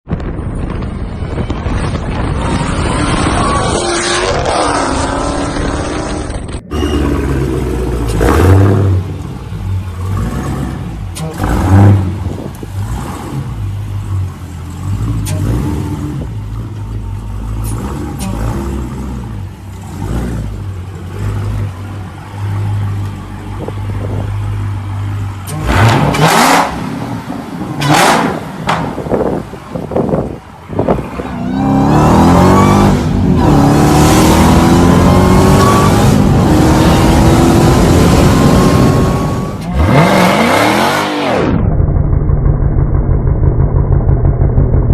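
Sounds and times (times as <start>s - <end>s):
engine revving: 2.6s - 16.7s, 25.4s - 29.0s, 30.9s - 44.9s
car engine idling with deep rumble: 6.5s - 25.7s, 41.7s - 44.9s.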